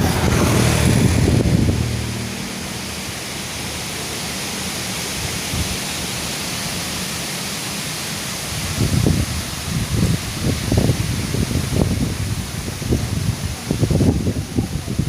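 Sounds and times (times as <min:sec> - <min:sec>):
wind buffeting microphone: 0:00.0 - 0:02.8, 0:08.6 - 0:15.0
strong storm wind: 0:00.0 - 0:03.9, 0:05.0 - 0:06.8, 0:08.4 - 0:15.0.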